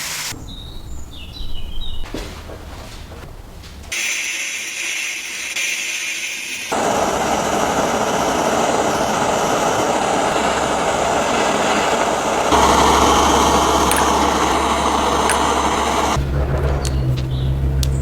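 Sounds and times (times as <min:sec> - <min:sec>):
loud mechanical machine noise: 0:04.0 - 0:18.0
low hum: 0:06.7 - 0:18.0.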